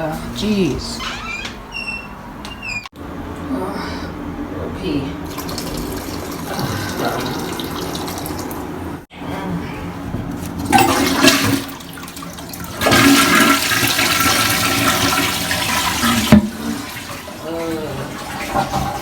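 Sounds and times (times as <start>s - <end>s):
water running: 4.9s - 9.1s, 10.5s - 19.0s
toilet flushing: 5.2s - 9.1s, 10.6s - 19.0s.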